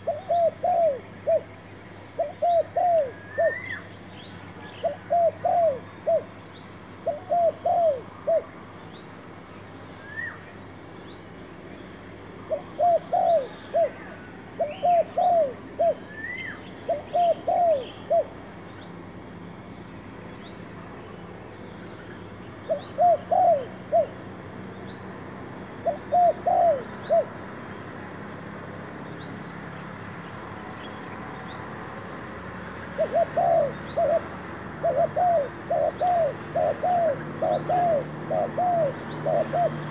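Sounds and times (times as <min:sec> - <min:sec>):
dove cooing: 0:00.0 - 0:01.6, 0:02.2 - 0:03.8, 0:04.8 - 0:06.3, 0:07.0 - 0:08.6, 0:12.5 - 0:18.4, 0:22.6 - 0:24.2, 0:25.8 - 0:27.4, 0:32.8 - 0:39.9
small birds chirping: 0:32.8 - 0:39.9.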